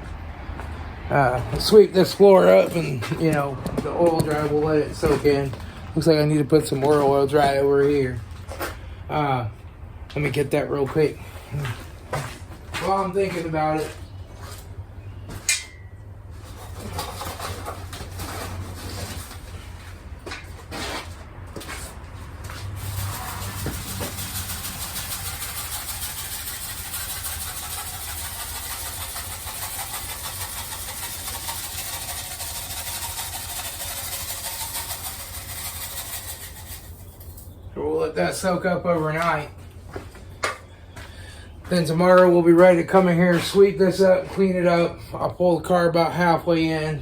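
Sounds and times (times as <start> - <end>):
knocks and scrapes: 1.4 - 8.8, 10.3 - 37.6.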